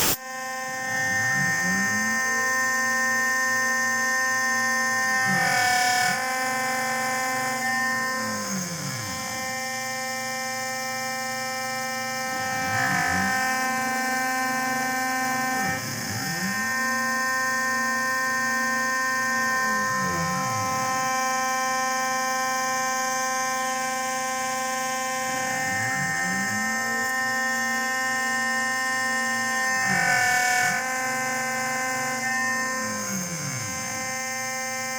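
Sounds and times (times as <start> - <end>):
stepper motors sweeping: 0.0 - 0.2
milling machine whine: 0.0 - 34.9.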